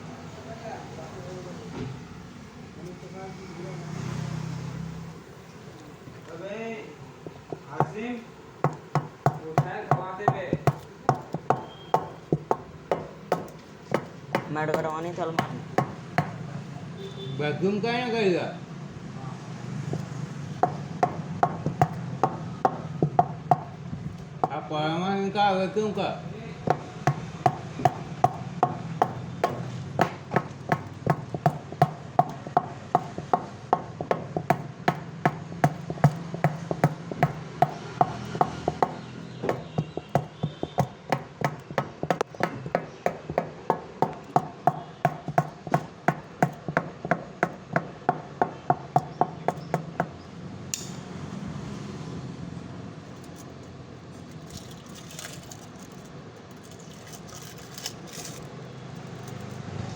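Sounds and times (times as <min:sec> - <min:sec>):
hammer blows ringing: 0:08.6 - 0:17.4, 0:20.0 - 0:23.8, 0:25.9 - 0:51.2.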